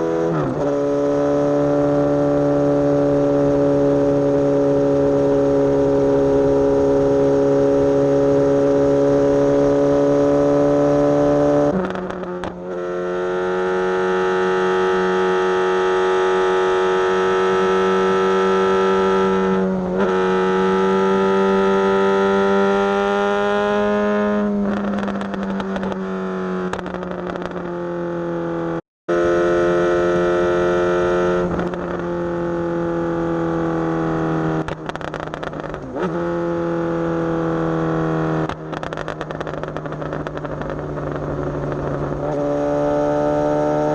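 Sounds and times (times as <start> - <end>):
motorcycle engine cruising: 0.0 - 43.9.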